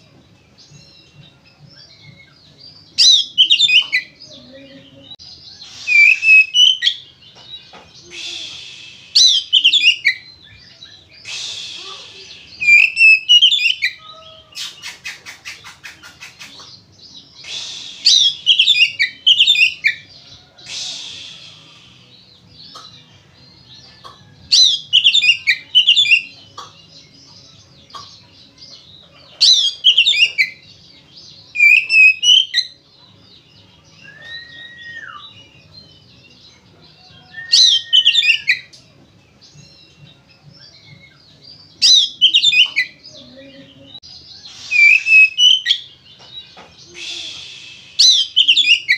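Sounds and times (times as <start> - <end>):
bird singing whistled phrases: 3.0 - 4.2, 5.6 - 7.0, 8.0 - 15.6, 17.4 - 21.9, 24.6 - 26.4, 29.5 - 30.6, 31.5 - 32.8, 34.0 - 35.5, 37.0 - 38.7, 41.8 - 43.0, 44.4 - 45.9, 46.8 - 48.9.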